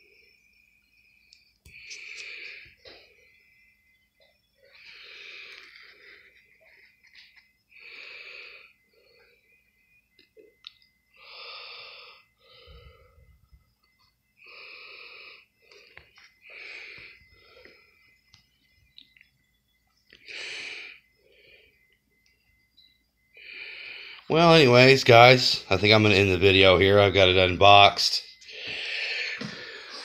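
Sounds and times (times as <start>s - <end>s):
person breathing close to microphone: 1.7s - 3.0s, 4.7s - 7.0s, 11.2s - 13.6s, 14.4s - 17.9s, 20.2s - 21.9s, 28.5s - 30.0s.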